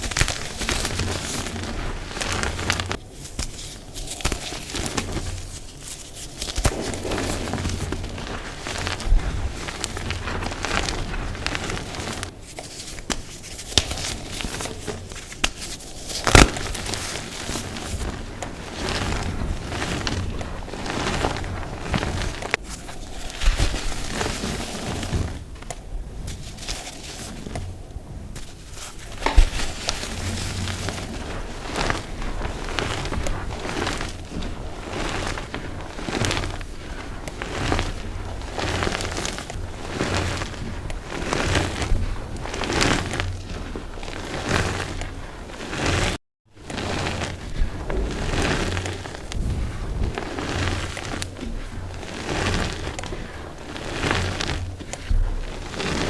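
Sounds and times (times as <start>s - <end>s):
chalk blocks crunching: 0.0s - 24.9s.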